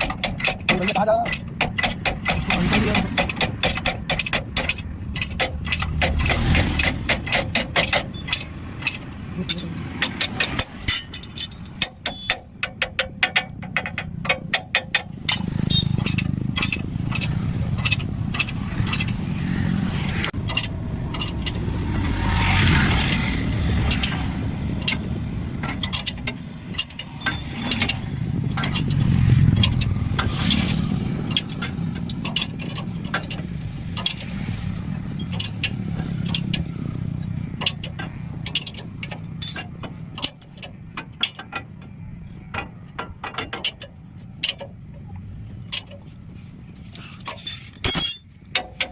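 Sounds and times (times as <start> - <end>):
metallic clicks and knocks: 0.0 - 48.9
vehicle engine droning: 13.4 - 47.4.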